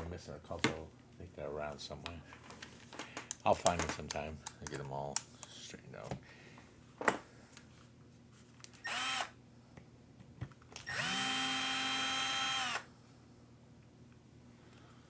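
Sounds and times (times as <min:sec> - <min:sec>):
electric screwdriver whining: 0:08.8 - 0:09.4, 0:10.8 - 0:12.9.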